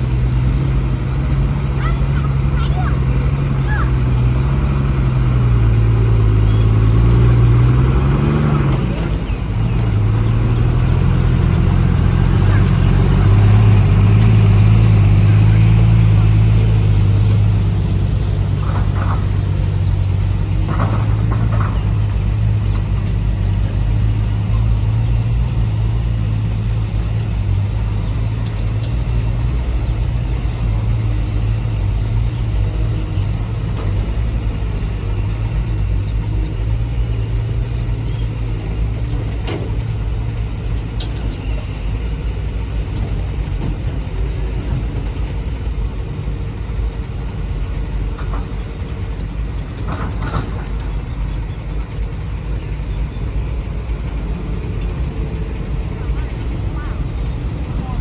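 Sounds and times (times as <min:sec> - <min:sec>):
sharp clicks and knocks: 0:18.4 - 0:19.8, 0:20.5 - 0:23.8, 0:48.1 - 0:52.0.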